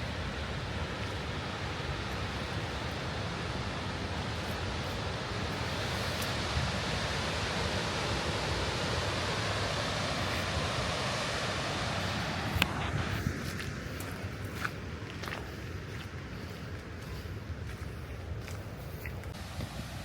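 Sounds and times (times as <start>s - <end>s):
waterfall rushing: 0.0s - 14.0s, 19.3s - 20.0s.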